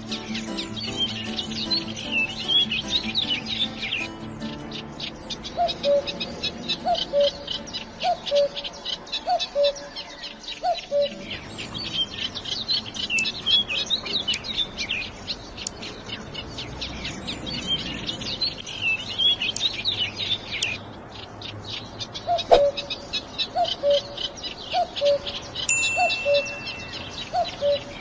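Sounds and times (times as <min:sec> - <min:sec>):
songbirds chirping and twittering: 0:00.0 - 0:28.0
lower bird call: 0:22.3 - 0:28.0.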